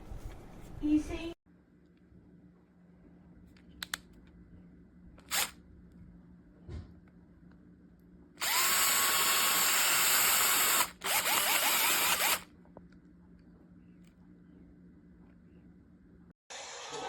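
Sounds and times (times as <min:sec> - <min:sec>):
cordless drill running: 0:05.3 - 0:05.5, 0:08.4 - 0:12.4.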